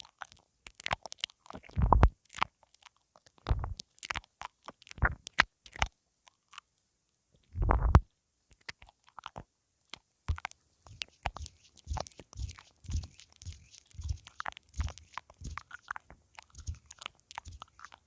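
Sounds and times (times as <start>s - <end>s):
wet mouth clicks and smacks: 0.0s - 6.6s, 10.3s - 18.0s
lips thudding on microphone: 7.6s - 8.0s.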